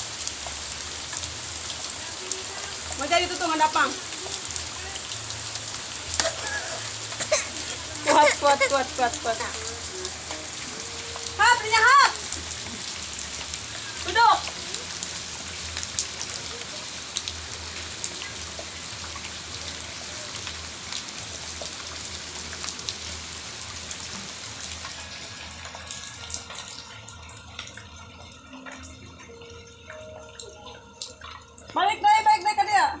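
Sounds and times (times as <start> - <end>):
rain falling: 0.0 - 33.0.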